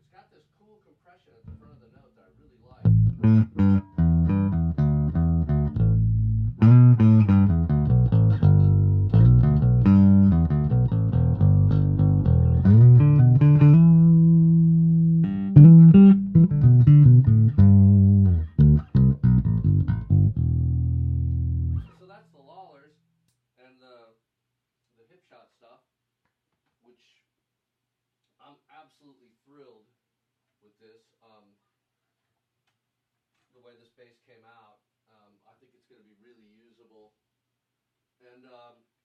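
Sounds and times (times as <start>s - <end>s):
electric bass plucked riff: 2.8s - 21.9s.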